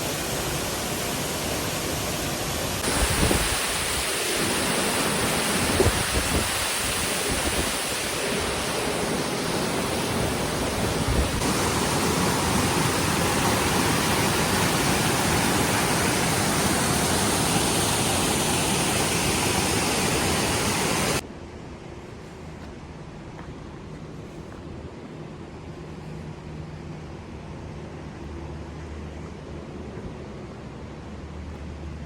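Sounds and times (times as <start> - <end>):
waterfall rushing: 0.0 - 21.2.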